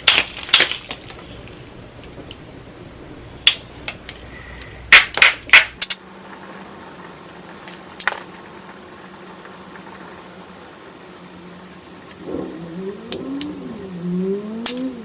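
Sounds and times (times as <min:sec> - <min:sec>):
stone knapping clicks: 0:14.6 - 0:14.9.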